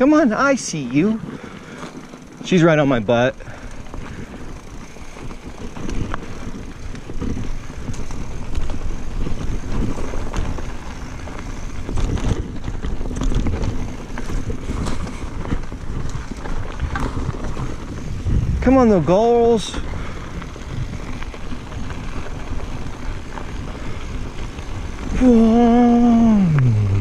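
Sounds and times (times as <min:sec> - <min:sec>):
bike clicks and rattles: 0:00.0 - 0:26.7
bike tyres rumbling on dirt: 0:00.0 - 0:27.0
wind buffeting microphone: 0:00.8 - 0:27.0.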